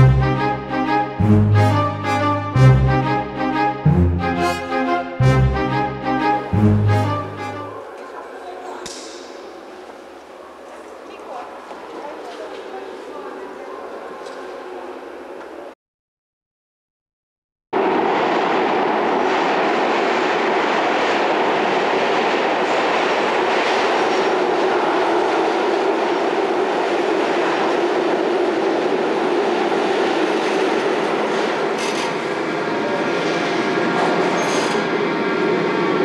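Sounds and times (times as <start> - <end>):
rail wheels rumbling on track: 17.8 - 36.0.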